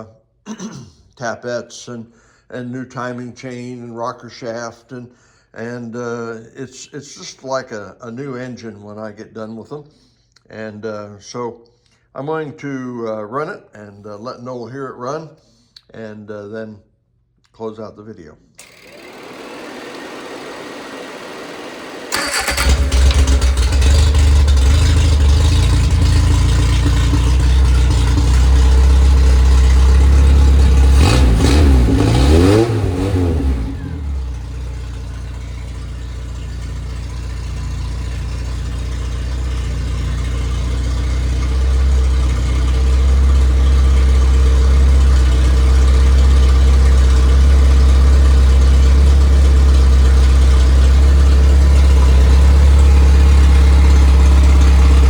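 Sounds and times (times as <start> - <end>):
engine starting and running: 18.6 - 55.0.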